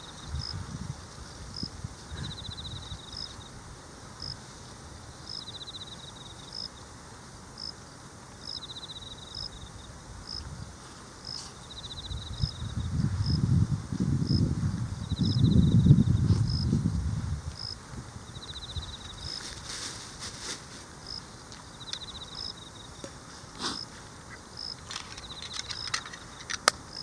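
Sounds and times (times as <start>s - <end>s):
insect pulsed trill: 1.6s - 3.6s, 5.0s - 6.9s, 8.4s - 19.4s, 21.0s - 23.1s
low rustling: 18.7s - 21.2s.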